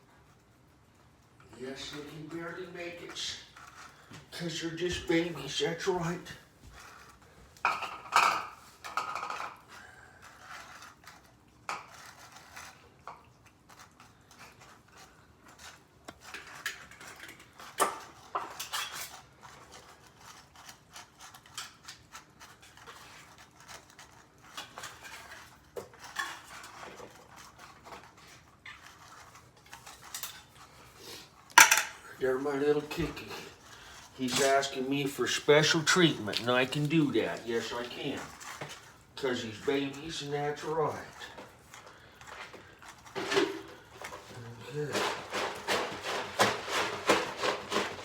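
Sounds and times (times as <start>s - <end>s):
dishes and utensil clinking: 31.5s - 32.1s.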